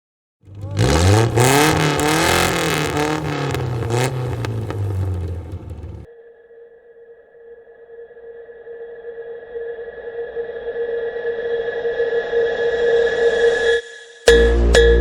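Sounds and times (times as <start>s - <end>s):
car engine revving hard: 0.5s - 6.1s.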